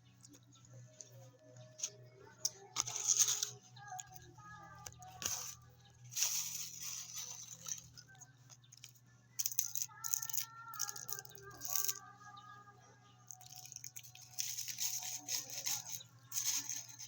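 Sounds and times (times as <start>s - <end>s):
faint background music: 0.0s - 17.0s
snack wrapper rustling: 4.8s - 12.0s, 13.3s - 17.0s.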